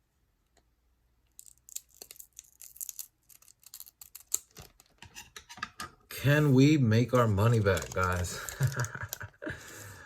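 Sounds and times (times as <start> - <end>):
foil pack tearing and crinkling: 1.4 - 5.0, 7.2 - 9.3.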